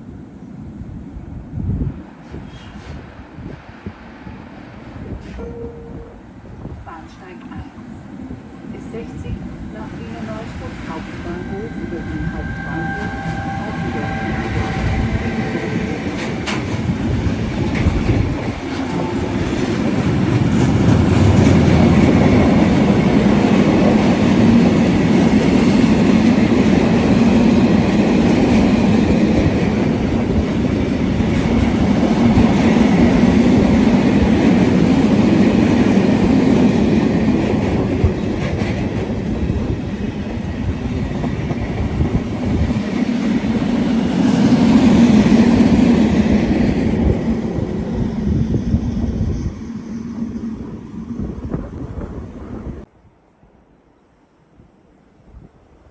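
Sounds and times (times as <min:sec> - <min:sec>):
train rumbling past: 0:00.0 - 0:52.9.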